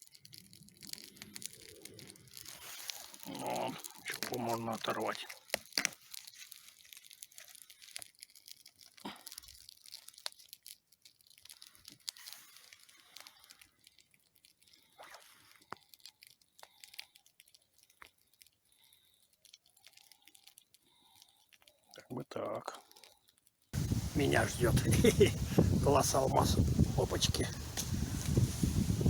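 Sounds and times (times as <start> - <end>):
dry wood tearing and snapping: 0.0 - 22.0.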